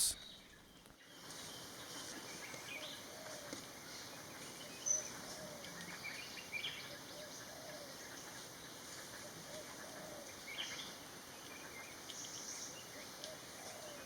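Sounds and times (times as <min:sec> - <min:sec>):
background hiss: 0:00.0 - 0:00.4
birds calling and chirping: 0:00.0 - 0:14.0.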